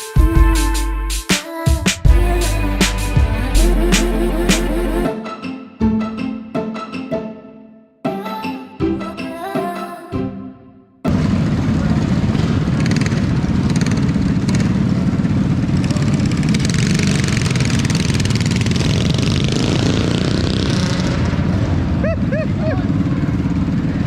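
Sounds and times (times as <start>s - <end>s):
mini bike engines running: 11.1s - 24.0s.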